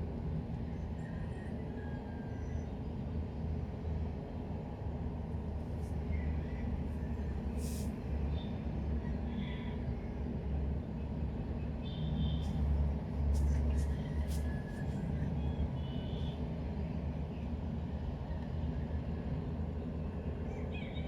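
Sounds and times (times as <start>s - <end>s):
low rumble of vehicle traffic: 0.0s - 21.0s
brief hiss: 7.6s - 8.0s.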